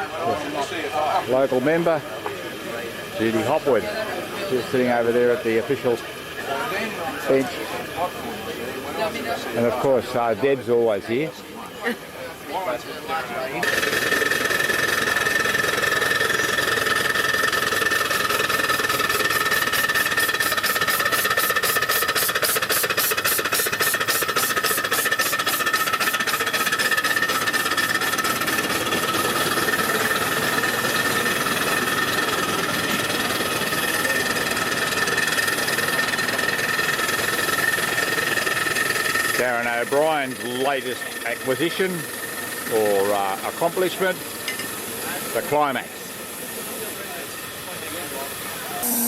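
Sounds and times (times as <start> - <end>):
engine running: 13.6 - 49.0
steady high tones: 28.9 - 49.0.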